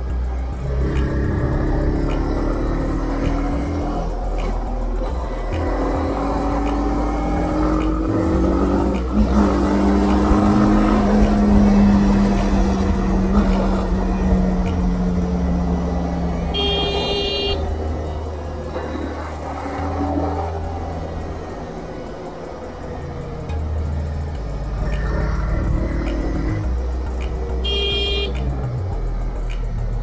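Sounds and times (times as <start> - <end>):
motorcycle engine running: 0.0 - 18.7, 22.6 - 29.1
high-pitched horn tone: 16.5 - 17.7, 27.6 - 28.4.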